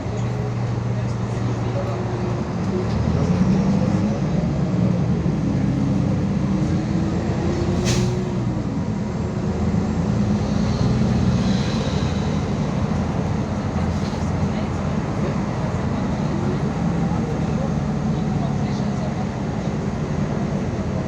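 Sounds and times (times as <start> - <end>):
bus engine drone: 0.0 - 21.0.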